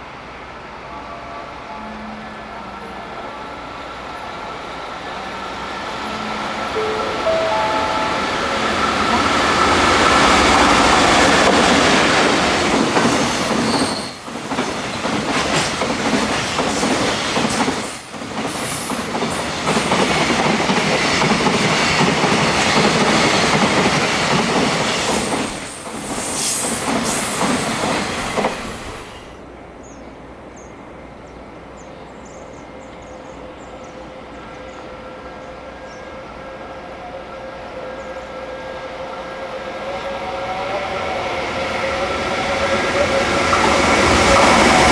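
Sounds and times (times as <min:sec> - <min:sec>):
rail-side noise: 0:00.0 - 0:44.9
freight train wagons rumbling: 0:06.8 - 0:29.3
train wheels squealing: 0:12.7 - 0:21.0, 0:23.6 - 0:29.4.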